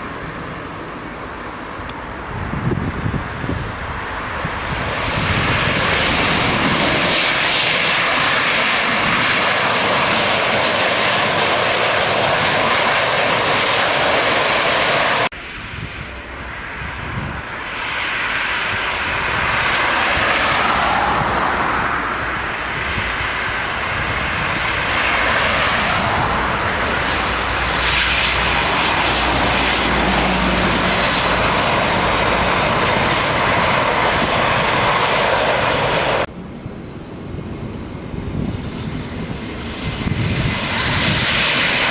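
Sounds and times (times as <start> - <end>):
jet airliner engine rush: 0.0 - 41.9.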